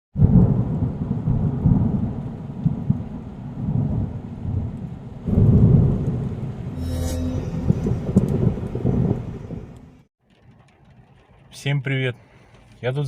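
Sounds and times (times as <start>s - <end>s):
car cabin rumble on rough road: 9.2s - 13.0s.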